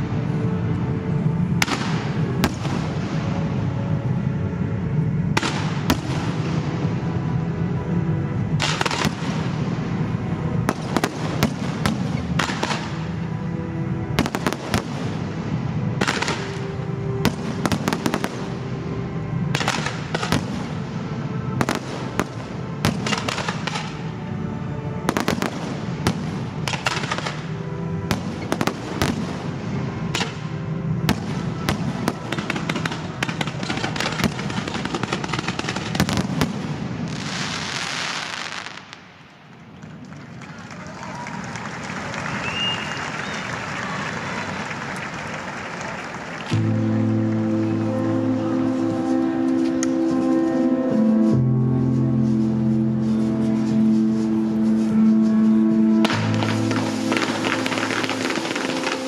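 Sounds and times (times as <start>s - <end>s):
music playing: 0.0s - 38.6s, 43.8s - 59.0s
fireworks bangs and crackles: 1.2s - 7.4s, 8.0s - 13.3s, 14.1s - 24.2s, 25.0s - 40.4s, 56.0s - 59.0s.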